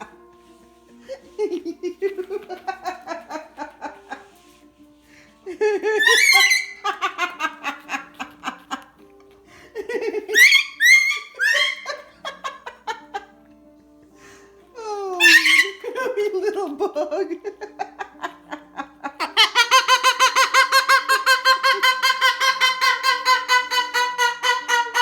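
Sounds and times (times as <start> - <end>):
quiet background music: 0.0 - 25.0
woman laughing hard: 1.1 - 4.4, 5.4 - 9.0, 9.6 - 13.4, 14.8 - 25.0.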